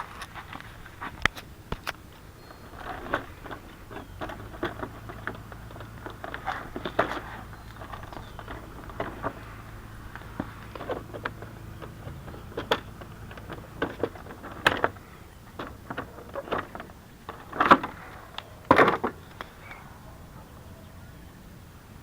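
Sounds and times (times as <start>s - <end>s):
loud clatters: 0.0s - 19.6s
low steady hum: 0.0s - 22.0s
knocks and rattles: 0.4s - 19.4s.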